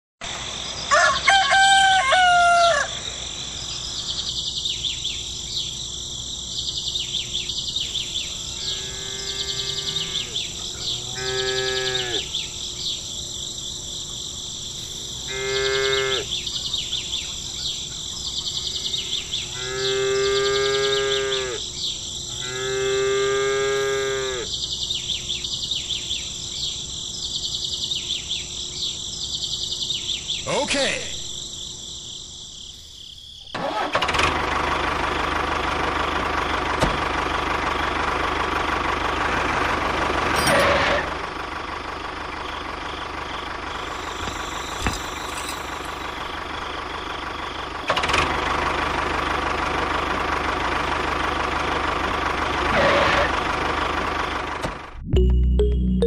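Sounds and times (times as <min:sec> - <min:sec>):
insects chirping: 0:00.2 - 0:54.5
rooster crowing: 0:00.9 - 0:03.1
cattle mooing: 0:08.4 - 0:12.4, 0:15.3 - 0:16.4, 0:19.5 - 0:21.6, 0:22.4 - 0:24.5, 0:52.7 - 0:53.3.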